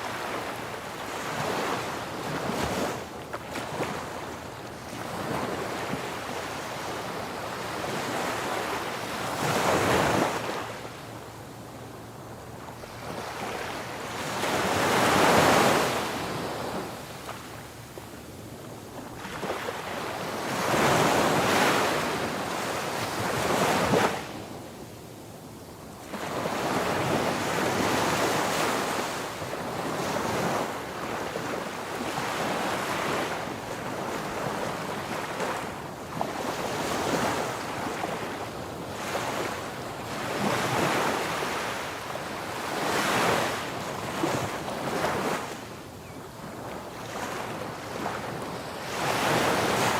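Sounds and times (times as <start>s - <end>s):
waves washing onto a beach: 26.0s - 49.9s.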